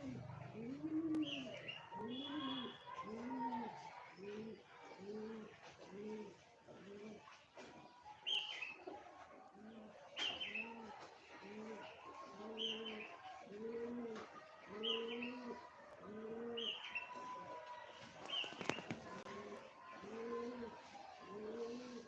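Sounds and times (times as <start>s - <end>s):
pigeons cooing: 0.0s - 7.3s, 8.7s - 17.4s, 18.2s - 22.0s.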